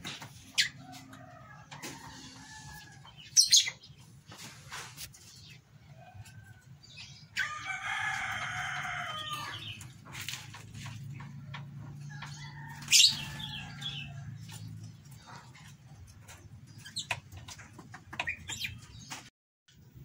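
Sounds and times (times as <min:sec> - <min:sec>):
drawn-out bird calls: 0:07.2 - 0:19.1.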